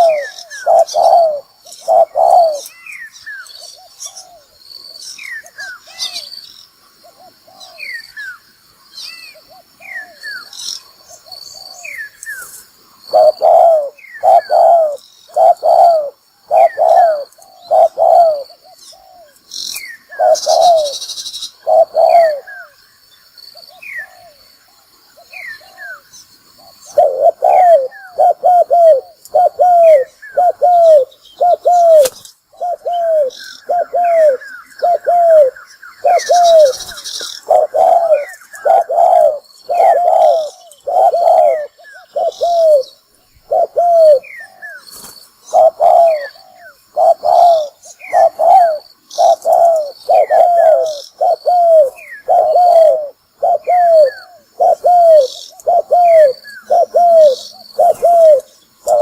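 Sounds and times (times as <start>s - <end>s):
dove cooing: 0.0s - 2.8s, 13.1s - 19.4s, 20.0s - 22.8s, 23.7s - 24.4s, 26.6s - 59.0s.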